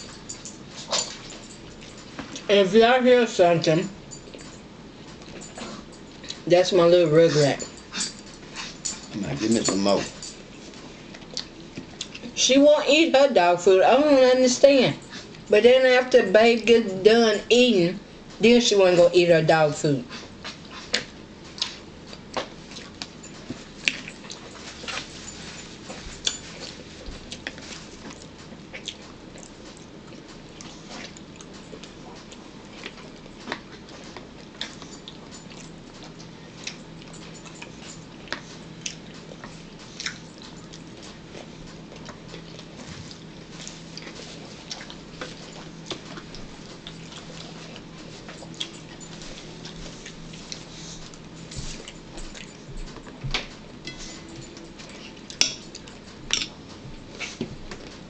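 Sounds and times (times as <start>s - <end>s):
chewing clicks and smacks: 11.1s - 12.3s, 26.2s - 53.7s.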